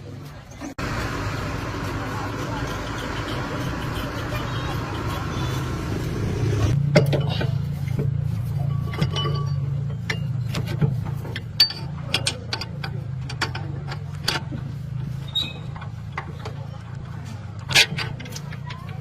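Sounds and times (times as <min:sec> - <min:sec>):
steady low hum: 0:00.8 - 0:11.4
metal tools clinking: 0:08.5 - 0:14.0.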